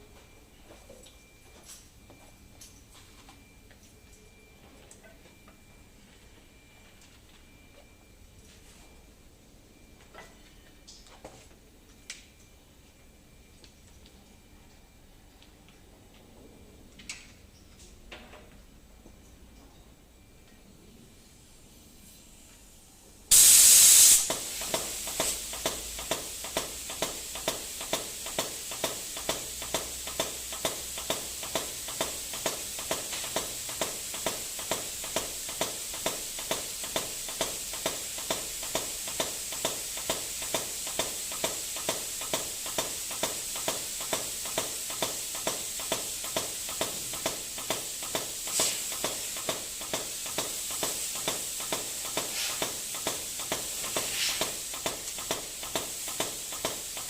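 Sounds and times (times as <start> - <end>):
lubricant mist spray hissing: 23.3 - 57.0
pump clicking: 24.2 - 57.0.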